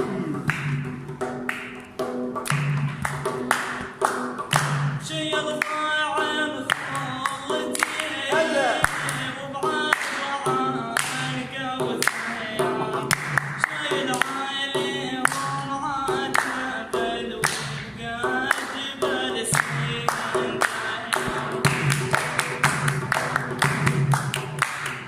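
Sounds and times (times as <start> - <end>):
hand claps: 0.4 - 5.9, 6.6 - 11.4, 12.0 - 14.4, 15.2 - 15.6, 16.3 - 16.7, 17.4 - 18.9, 19.5 - 25.0
man singing ornamented lines: 5.0 - 21.6.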